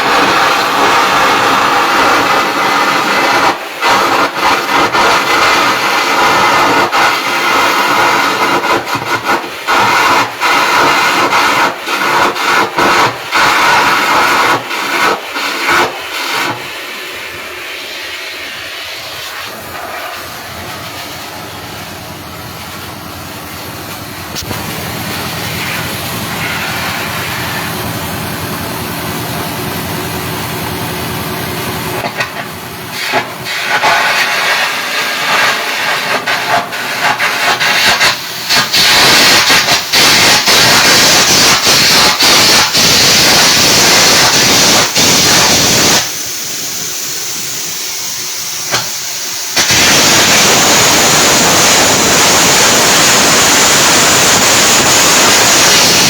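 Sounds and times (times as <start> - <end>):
welding arc sizzling and crackling: 0.0 - 17.2, 19.1 - 56.0
steady hum: 15.7 - 33.9.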